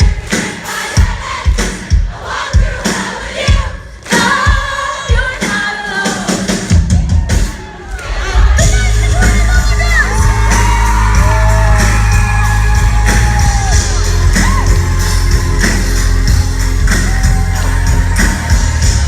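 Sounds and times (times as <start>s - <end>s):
live pop-rock band: 0.0s - 19.0s
crowd whooping and shouting: 6.7s - 19.0s
booming bass: 8.3s - 19.0s.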